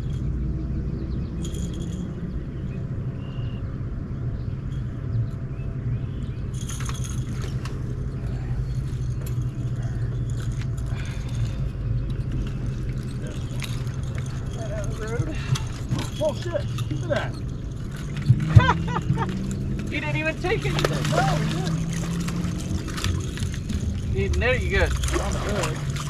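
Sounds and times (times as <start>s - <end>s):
boat motor droning: 0.0s - 26.0s
fishing gear rattling clicks: 6.5s - 26.0s.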